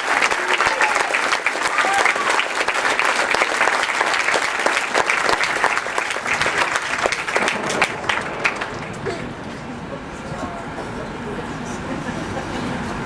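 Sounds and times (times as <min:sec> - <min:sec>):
crowd applauding and cheering: 0:00.0 - 0:09.6.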